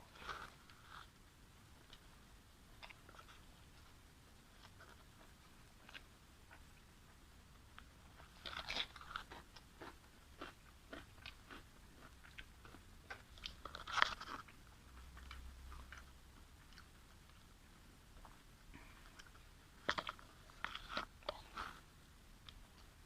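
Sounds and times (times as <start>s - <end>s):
crunchy chewing: 7.8s - 17.4s, 18.2s - 21.9s.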